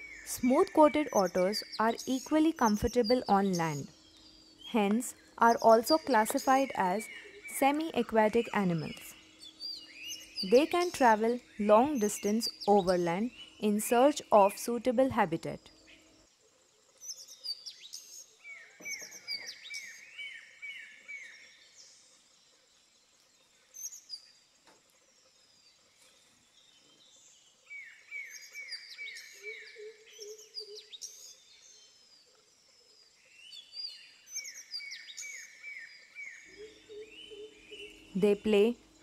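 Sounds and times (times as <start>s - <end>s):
high twittering calls: 0.0s - 16.0s, 17.0s - 21.4s
birds singing: 0.0s - 16.2s, 17.0s - 22.1s, 26.5s - 32.1s, 33.1s - 39.0s.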